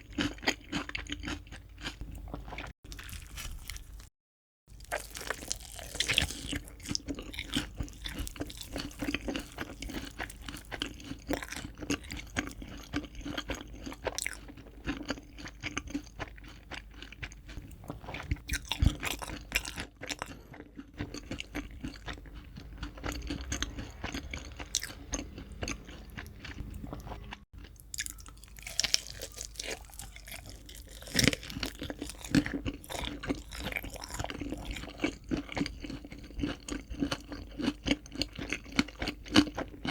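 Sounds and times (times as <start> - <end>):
crunchy chewing: 0.0 - 4.1, 4.7 - 39.9.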